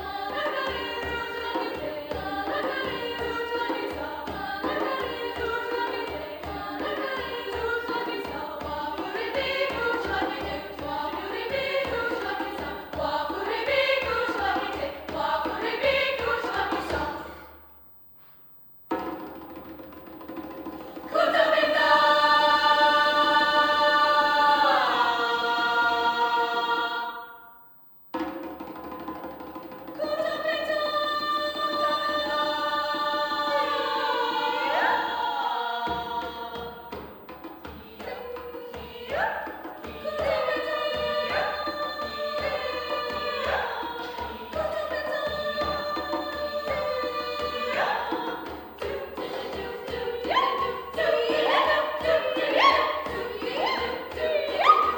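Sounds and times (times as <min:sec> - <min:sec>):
choir singing a held chord: 0:00.0 - 0:17.6, 0:21.0 - 0:27.7, 0:30.0 - 0:54.9
light percussion strikes: 0:35.8 - 0:54.9.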